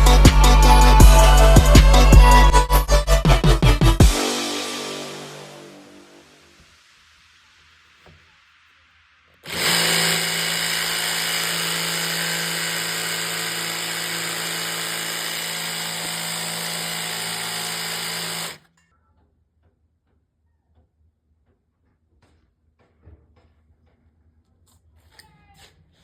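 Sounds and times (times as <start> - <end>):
power tool running: 9.4 - 18.6.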